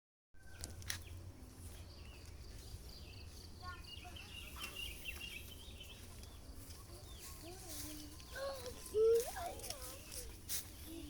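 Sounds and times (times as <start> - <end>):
birds chirping: 0.4 - 11.0
faint voices: 3.2 - 11.0.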